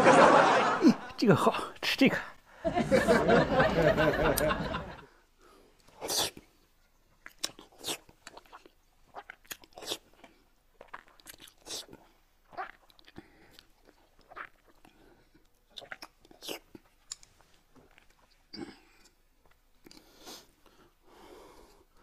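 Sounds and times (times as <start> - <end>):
man's voice: 1.2 - 2.3.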